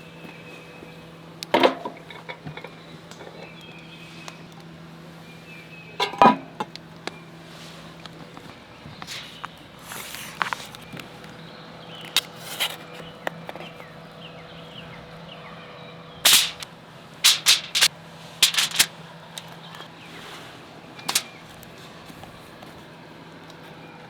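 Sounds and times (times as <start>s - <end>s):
wood snapping and popping: 16.3s - 16.6s, 17.3s - 18.9s, 21.0s - 21.4s.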